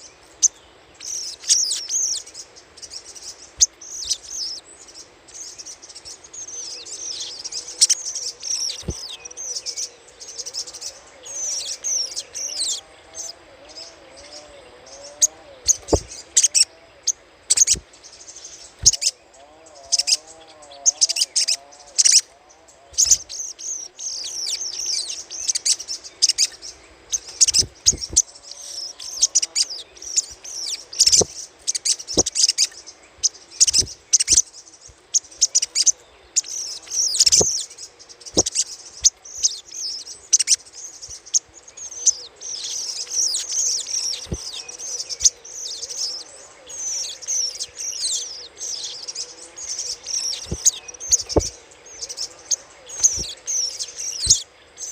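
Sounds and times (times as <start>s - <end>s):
bird chattering call: 27.1s - 34.4s, 35.2s - 37.7s, 38.4s - 40.6s, 49.7s - 54.4s
sharp click-like bird notes: 36.9s - 37.6s, 38.4s - 39.2s, 53.0s - 53.4s.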